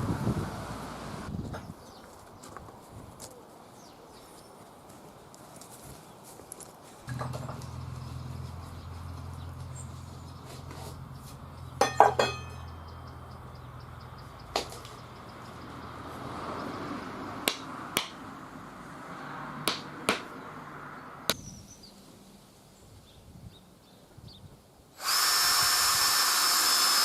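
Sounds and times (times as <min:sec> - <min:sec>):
sharp knocks: 0:07.1 - 0:08.5, 0:11.8 - 0:12.8, 0:17.5 - 0:18.2, 0:19.6 - 0:20.3
low steady hum: 0:07.1 - 0:13.9.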